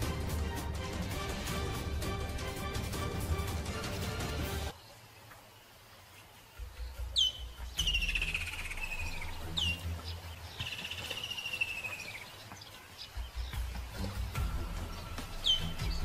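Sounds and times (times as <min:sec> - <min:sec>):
songbird whistle and trill: 0:07.1 - 0:16.0.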